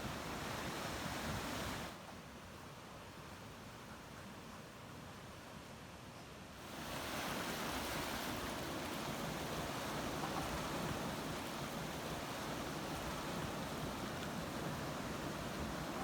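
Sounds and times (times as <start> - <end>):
ocean waves breaking: 6.6 - 16.0.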